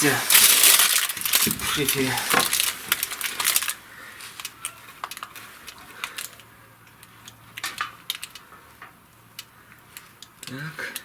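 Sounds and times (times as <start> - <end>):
small hard objects clinking: 0.0 - 6.4.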